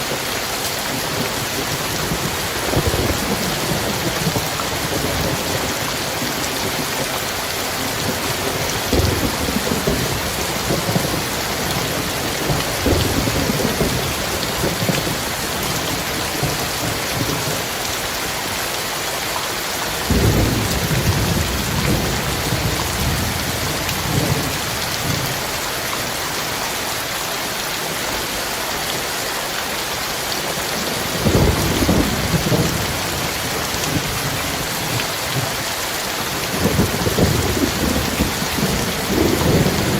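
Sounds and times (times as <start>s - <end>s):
heavy rain: 0.0s - 39.9s
rolling thunder: 2.0s - 6.8s, 8.0s - 17.6s, 20.1s - 25.4s, 31.0s - 35.6s, 36.4s - 39.9s.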